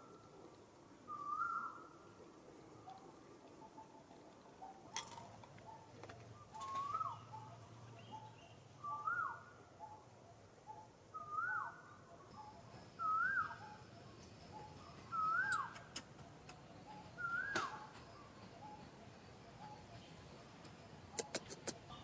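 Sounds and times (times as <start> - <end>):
bird whistling rising and falling: 1.1 - 1.8, 13.0 - 13.8, 14.6 - 15.7, 16.9 - 17.9.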